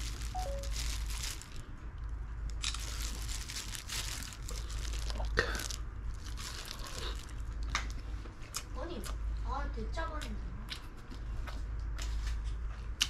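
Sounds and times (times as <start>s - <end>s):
person chewing food crunchily: 0.0s - 9.2s.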